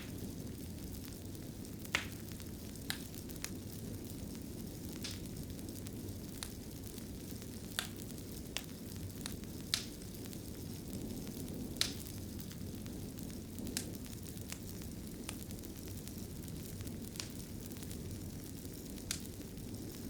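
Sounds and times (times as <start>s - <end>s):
fire crackling and popping: 0.0s - 20.0s
low rush of fire: 0.0s - 20.0s.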